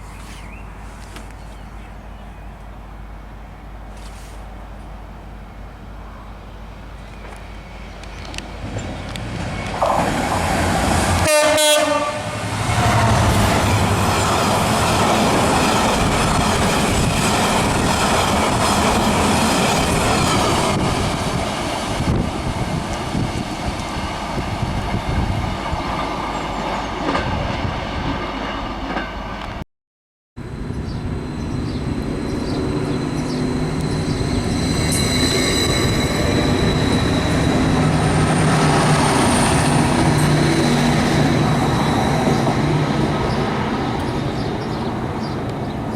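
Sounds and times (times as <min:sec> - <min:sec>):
train passing: 0:02.0 - 0:29.6, 0:30.4 - 0:45.9
train horn: 0:11.1 - 0:13.5.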